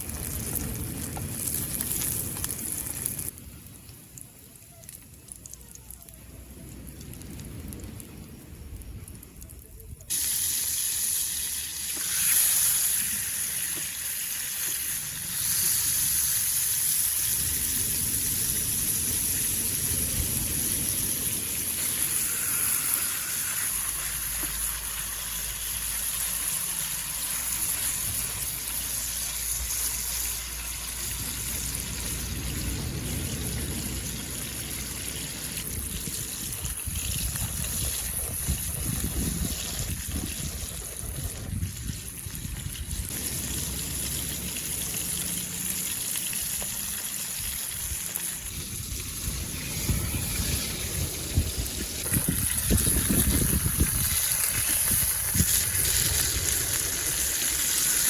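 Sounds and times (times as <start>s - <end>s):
wind buffeting microphone: 17.1s - 23.7s, 30.7s - 45.0s, 47.4s - 58.0s
surf washing onto beach: 31.0s - 35.7s.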